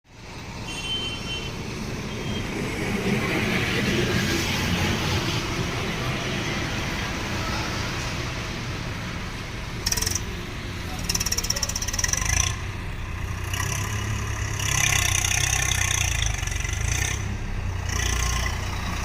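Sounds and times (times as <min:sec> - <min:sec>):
tractor diesel engine running: 0:08.2 - 0:19.0.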